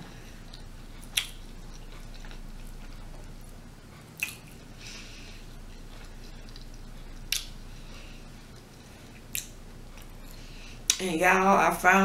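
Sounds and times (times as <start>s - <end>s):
wet chewing sounds: 0.3s - 11.0s
sharp bite clicks: 4.2s - 4.6s, 7.3s - 7.5s.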